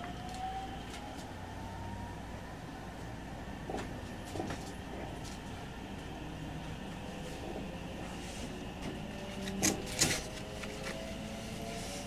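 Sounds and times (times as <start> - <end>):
train wheels rumbling on rail: 2.8 - 12.0.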